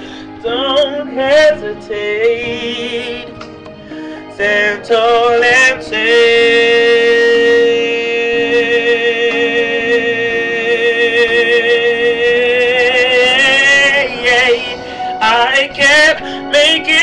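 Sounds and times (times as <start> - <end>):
person singing a long high note: 4.3 - 17.0.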